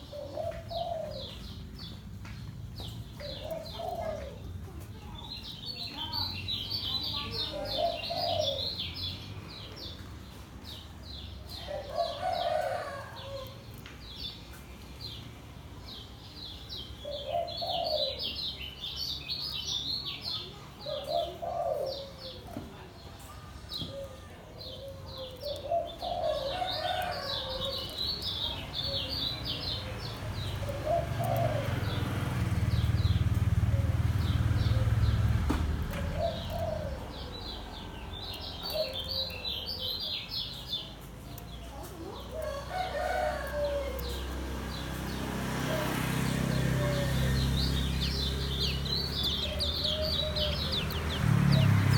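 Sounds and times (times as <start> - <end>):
bird chattering song: 2.8 - 12.6, 15.9 - 51.9
low cooing call: 20.8 - 22.5, 36.0 - 37.8.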